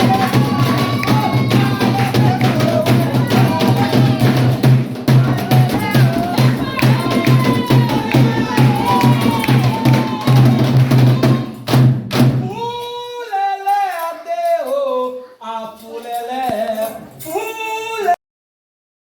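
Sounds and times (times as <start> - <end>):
chanted singing: 0.0 - 11.6
lone voice singing: 0.0 - 11.7, 12.4 - 18.2
hand drums beating: 0.0 - 12.8.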